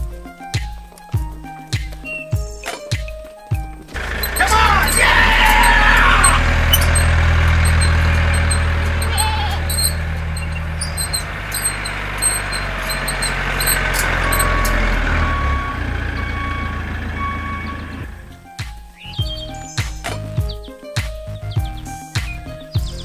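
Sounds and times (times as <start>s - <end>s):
heavy vehicle engine rumbling: 3.9s - 20.5s
reversing beeper: 4.0s - 18.3s.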